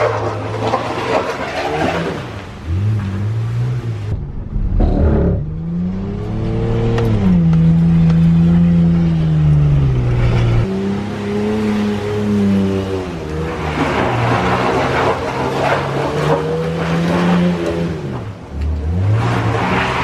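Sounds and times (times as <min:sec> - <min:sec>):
car engine revving hard: 0:04.8 - 0:20.0.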